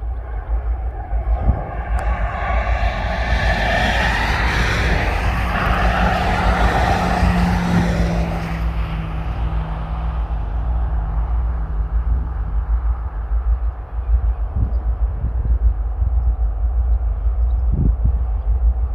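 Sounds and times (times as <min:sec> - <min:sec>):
vehicle tyre noise passing: 0:00.0 - 0:14.5
engine hum: 0:00.0 - 0:15.7
constant low rumble: 0:00.0 - 0:18.9.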